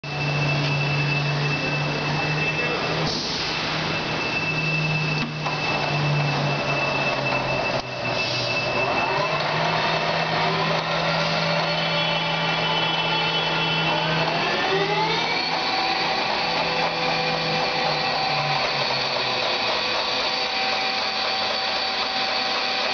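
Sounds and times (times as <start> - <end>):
spindle whine: 0.0 - 22.9
lathe humming: 8.8 - 22.9.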